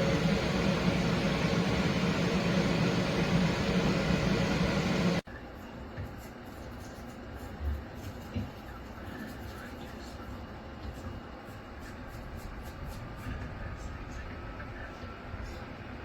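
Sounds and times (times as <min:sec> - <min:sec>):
electric fan running: 0:00.0 - 0:05.2.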